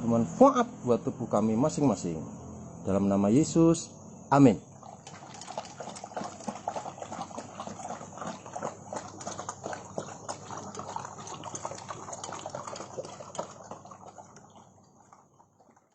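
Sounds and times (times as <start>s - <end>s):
dogs eating crunchily: 4.7s - 15.9s.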